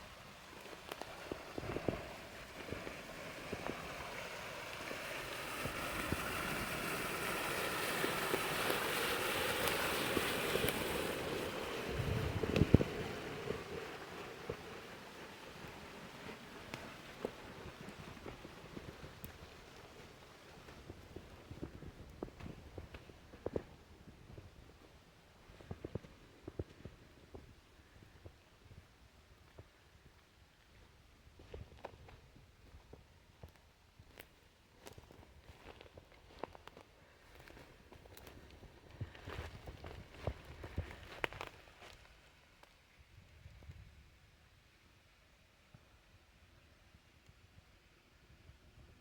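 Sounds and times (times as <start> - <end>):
water rushing through channel: 0.0 - 21.6.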